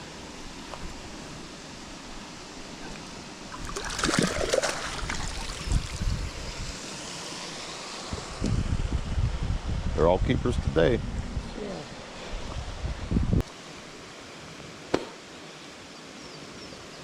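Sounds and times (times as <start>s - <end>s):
river water running over riffle: 0.0s - 8.4s
handling or splashing noise: 3.6s - 6.2s.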